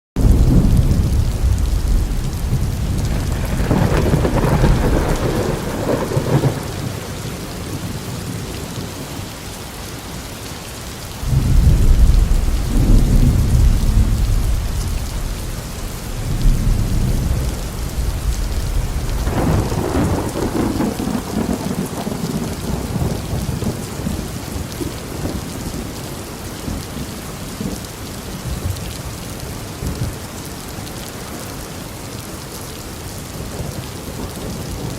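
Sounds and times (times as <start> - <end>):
thunder rolling: 0.2 - 7.4, 11.2 - 23.8
heavy rain: 0.2 - 34.9.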